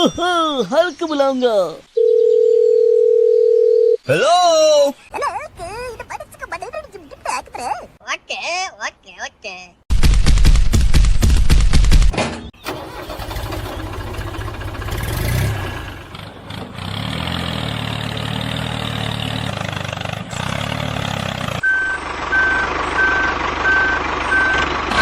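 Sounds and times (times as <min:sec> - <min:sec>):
vehicle engine humming: 0:05.0 - 0:08.0, 0:12.7 - 0:25.0
reversing beeper: 0:21.6 - 0:25.0.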